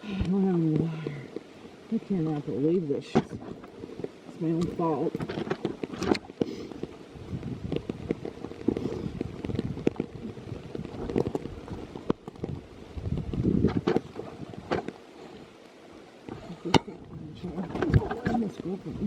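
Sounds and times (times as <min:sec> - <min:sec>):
wind noise on microphone: 0:00.0 - 0:19.0
camera handling rustles and knocks: 0:03.1 - 0:15.1.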